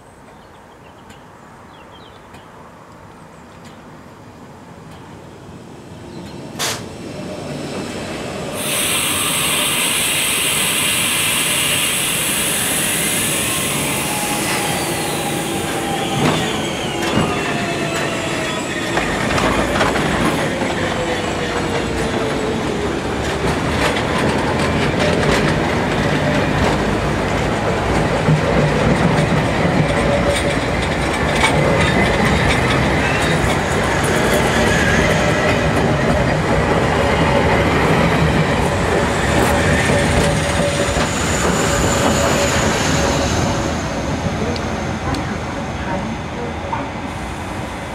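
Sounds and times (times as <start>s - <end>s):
underground train hiss: 6.6s - 27.6s, 46.8s - 47.9s
wheels clattering and squealing: 39.2s - 43.5s.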